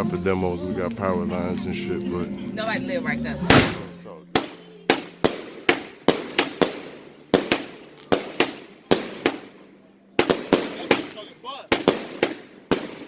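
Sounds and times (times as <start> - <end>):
firework bangs: 3.4 - 13.0.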